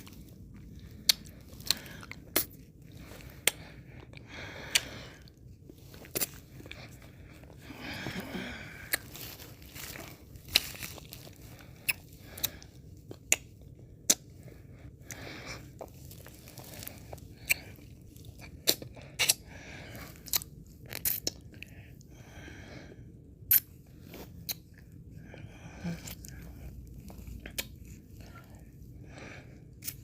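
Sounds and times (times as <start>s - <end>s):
wet mouth clicks and smacks: 13.2s - 14.2s, 23.5s - 23.7s.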